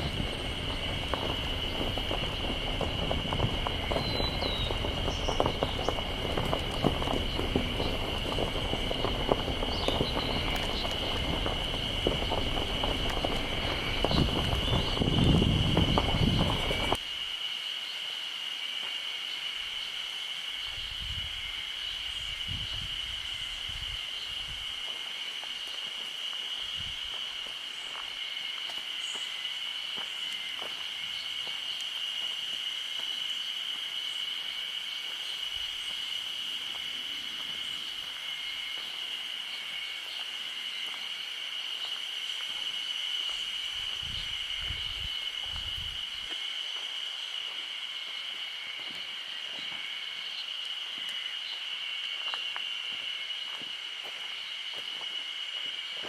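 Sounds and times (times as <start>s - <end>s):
low rumbles: 0.0s - 17.0s
insects singing high-pitched drone: 0.0s - 56.0s.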